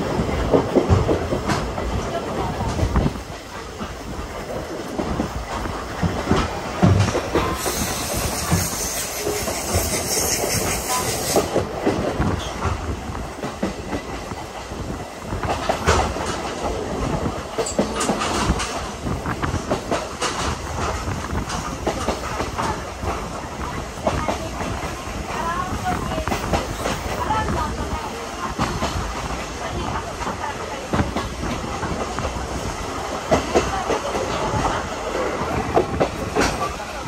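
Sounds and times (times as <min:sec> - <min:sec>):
train wheels clickety-clack: 0:00.0 - 0:37.0
high hiss: 0:07.5 - 0:11.6.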